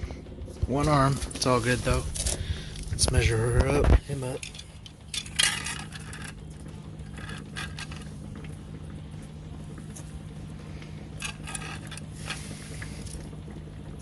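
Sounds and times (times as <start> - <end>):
steady low hum: 0.0 - 14.0
crab scratching against gauge: 4.2 - 8.1, 11.2 - 13.0.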